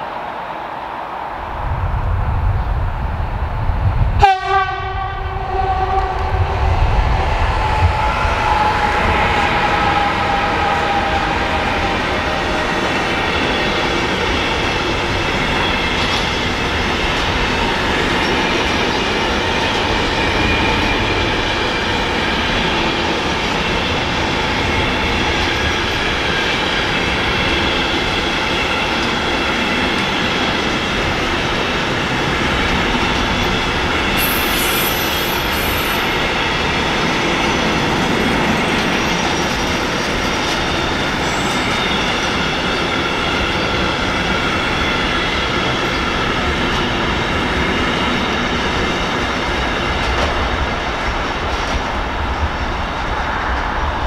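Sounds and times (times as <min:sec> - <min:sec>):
train wheels rumbling on rails: 0:00.0 - 0:54.0
faint squeal: 0:34.2 - 0:36.1.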